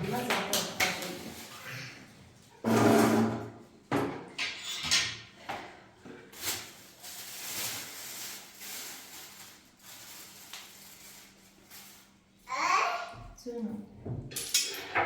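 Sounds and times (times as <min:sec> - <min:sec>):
scraping or rustling: 0:06.3 - 0:12.2.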